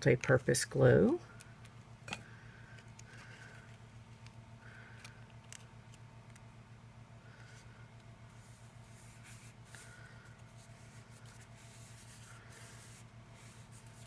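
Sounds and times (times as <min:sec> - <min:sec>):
low electrical hum: 0:00.0 - 0:14.0
paper rubbing: 0:08.4 - 0:14.0.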